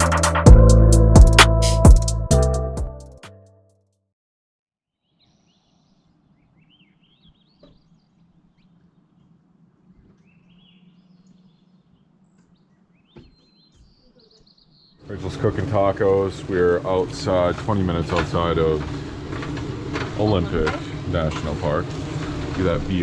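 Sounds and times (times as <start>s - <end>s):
faint birds chirping: 5.0s - 23.0s.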